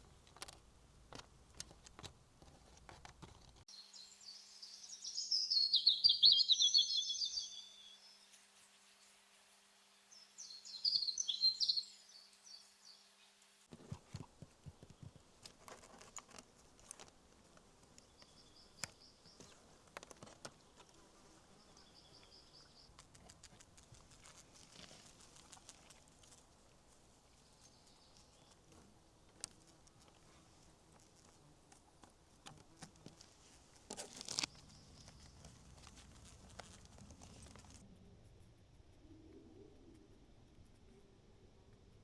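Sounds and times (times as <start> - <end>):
bird chirps: 3.8 - 8.3, 10.1 - 13.0, 18.0 - 19.6, 21.5 - 23.0
light clicks and knocks: 13.7 - 21.0.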